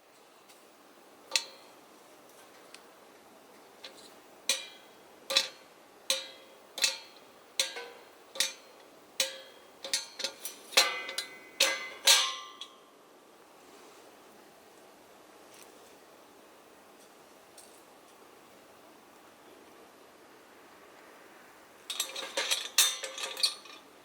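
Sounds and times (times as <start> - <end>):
metal kettle lid clinking: 4.5 - 8.6, 9.2 - 12.8, 21.9 - 23.7.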